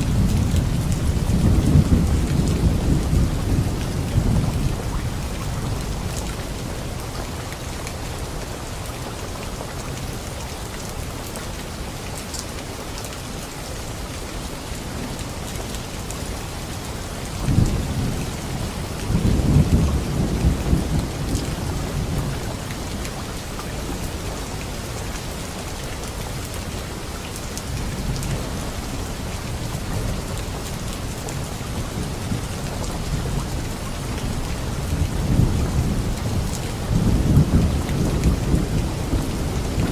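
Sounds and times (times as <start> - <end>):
thunder rumbling: 0.0 - 6.5, 17.5 - 22.7, 31.7 - 39.9
light rain on leaves: 0.0 - 39.9.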